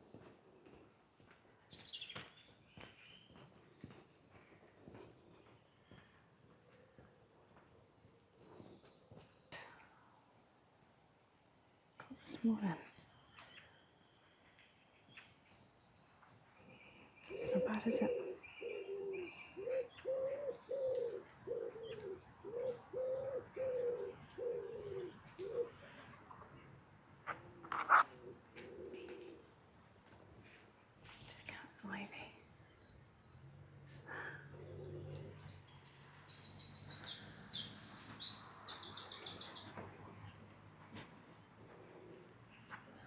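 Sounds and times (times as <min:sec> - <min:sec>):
small birds chirping: 0:00.2 - 0:07.4, 0:12.0 - 0:29.6, 0:30.4 - 0:40.6
pigeon cooing: 0:17.3 - 0:26.1, 0:27.3 - 0:29.5, 0:34.5 - 0:35.4
songbird singing trills: 0:35.0 - 0:39.8.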